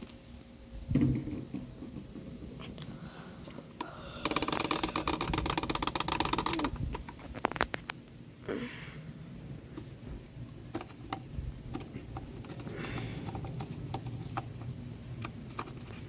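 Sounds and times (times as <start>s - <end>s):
oil pouring crackly rattling: 4.2s - 8.0s, 9.7s - 16.0s.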